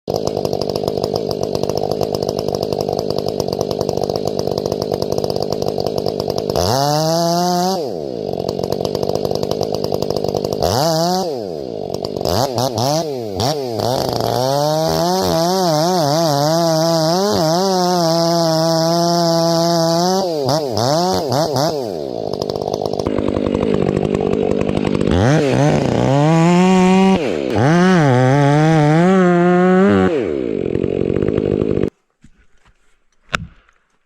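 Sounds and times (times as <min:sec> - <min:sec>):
chainsaw idling and revving: 0:00.1 - 0:32.0.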